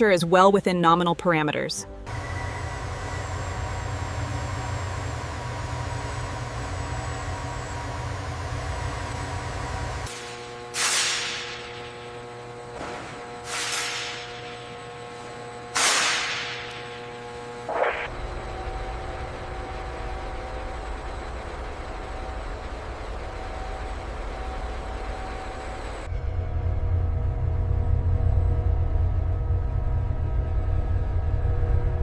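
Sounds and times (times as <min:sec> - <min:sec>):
low mechanical hum: 0:01.8 - 0:32.0
sharp clank-like burst: 0:10.1 - 0:11.8, 0:15.7 - 0:16.7.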